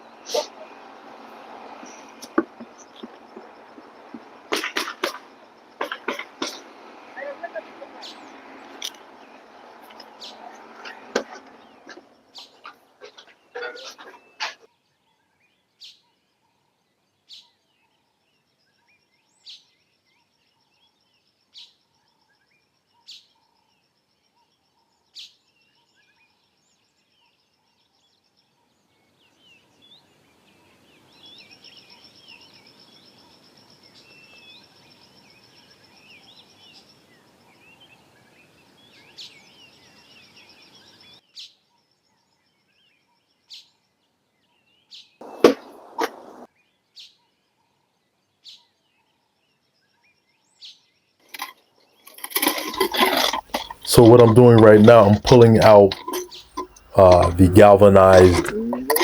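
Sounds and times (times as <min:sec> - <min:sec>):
birds chirping: 0:00.0 - 0:14.7, 0:51.3 - 0:59.0
rustling and knocking: 0:02.2 - 0:06.8, 0:52.1 - 0:59.0.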